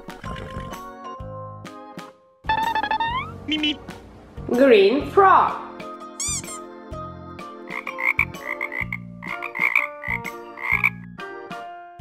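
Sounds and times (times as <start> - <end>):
frog croaking: 7.7 - 11.1.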